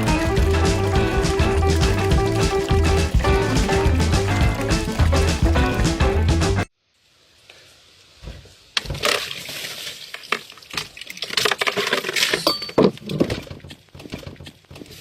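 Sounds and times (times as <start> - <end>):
hard objects clinking and clattering: 10.4 - 13.4.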